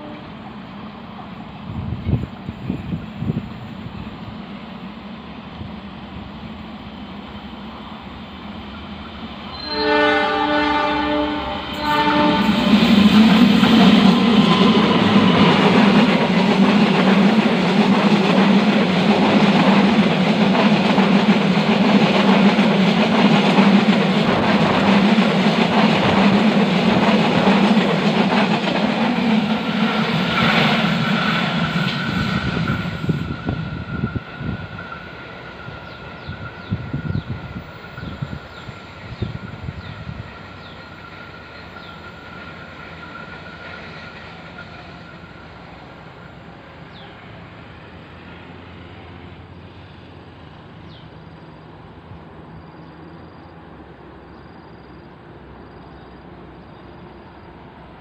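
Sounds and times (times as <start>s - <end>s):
train horn blast: 0.0s - 0.4s, 9.5s - 12.9s
train rumbling: 0.0s - 58.0s
train wheels clattering: 11.9s - 45.4s.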